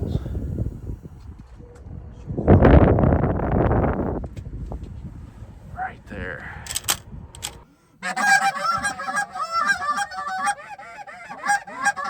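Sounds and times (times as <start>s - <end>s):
geese honking and clucking: 8.0s - 12.0s.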